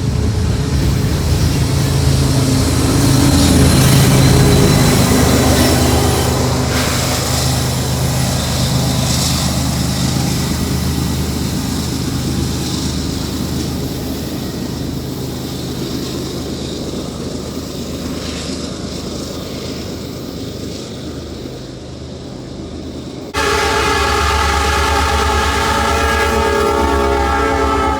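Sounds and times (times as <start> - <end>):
freight train rolling past: 0.0 - 27.9
locomotive air horn: 23.4 - 27.9.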